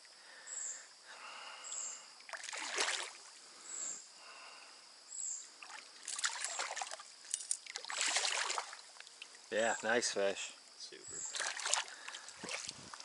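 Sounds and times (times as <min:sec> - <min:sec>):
water splashing and sloshing: 0:02.2 - 0:03.4, 0:05.6 - 0:09.5, 0:11.2 - 0:13.0.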